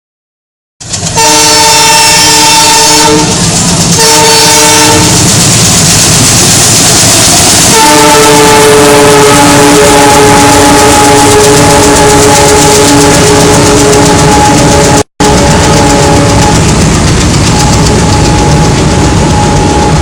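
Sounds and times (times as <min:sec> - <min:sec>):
rumble and clatter of wagons: 0:00.8 - 0:08.1, 0:08.9 - 0:20.0
train horn blasts: 0:01.2 - 0:05.3, 0:07.6 - 0:16.8, 0:17.9 - 0:20.0.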